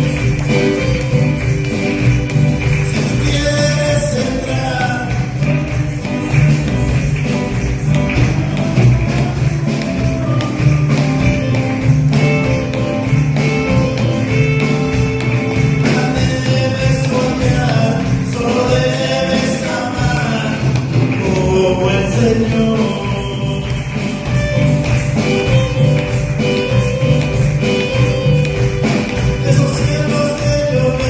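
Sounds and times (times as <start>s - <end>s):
person singing: 0.0s - 12.7s, 15.4s - 24.9s, 29.0s - 31.0s
gospel band playing: 0.0s - 31.0s
tambourine beat: 0.0s - 31.0s.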